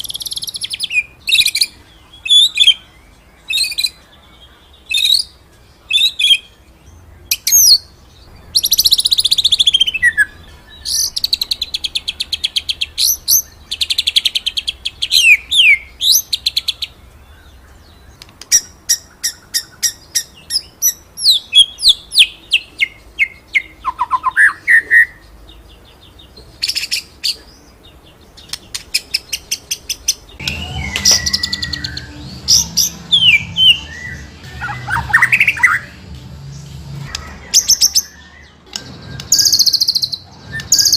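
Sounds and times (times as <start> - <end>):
bird singing rapid notes: 0.0 - 36.0, 36.6 - 40.9.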